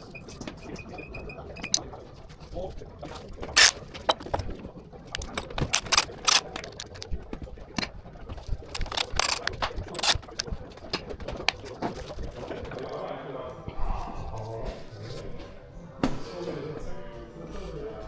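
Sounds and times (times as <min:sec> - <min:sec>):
clicks and knocks of metal tools: 0:03.6 - 0:04.4, 0:05.1 - 0:07.1, 0:08.7 - 0:10.6.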